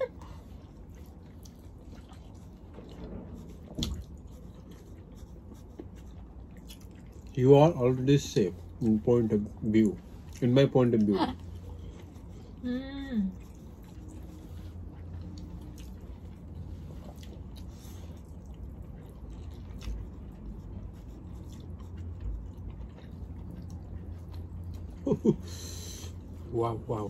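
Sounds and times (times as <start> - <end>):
people chewing: 0.0 - 27.0.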